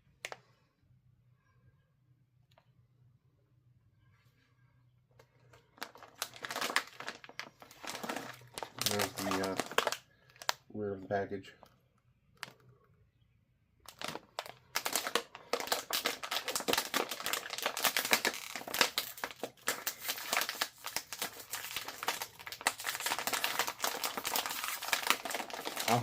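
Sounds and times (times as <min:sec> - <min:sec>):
chip bag crinkling: 0:05.2 - 0:10.6, 0:13.8 - 0:26.0.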